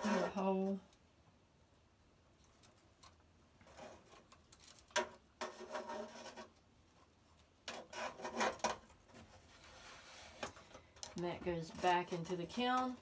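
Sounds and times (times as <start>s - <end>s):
probe rubbing and scraping: 0.0s - 0.8s, 5.4s - 13.0s.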